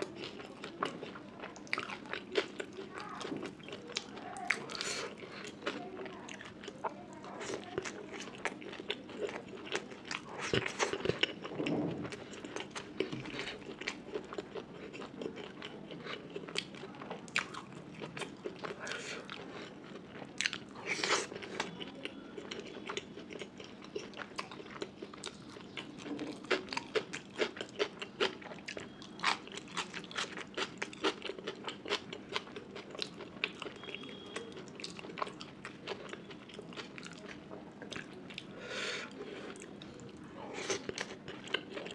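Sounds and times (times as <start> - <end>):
crunchy chewing and biting: 7.4 - 38.5.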